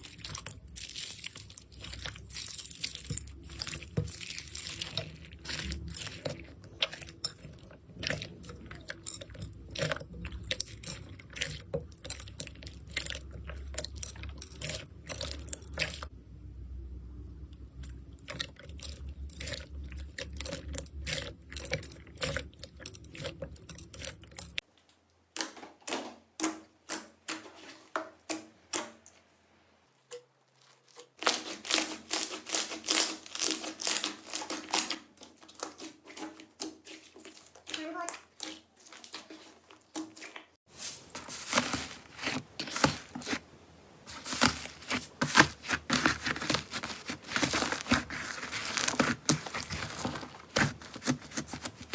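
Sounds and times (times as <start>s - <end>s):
slime crackling and popping: 30.6s - 36.2s.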